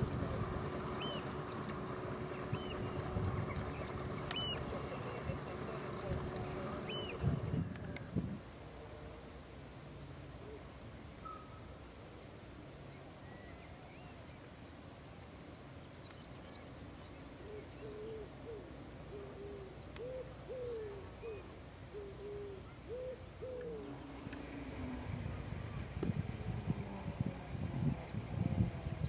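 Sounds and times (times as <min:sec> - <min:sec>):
bird's low call notes: 0:00.0 - 0:29.0
faint high chirps of small birds: 0:00.8 - 0:29.0.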